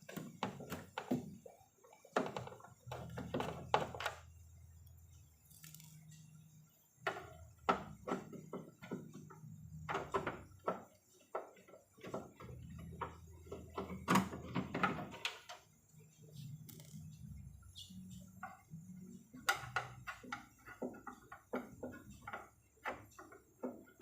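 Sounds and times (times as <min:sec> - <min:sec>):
knocks and clatter of plastic and tools: 0:00.0 - 0:04.4, 0:07.0 - 0:24.0
low steady hum: 0:00.0 - 0:10.7.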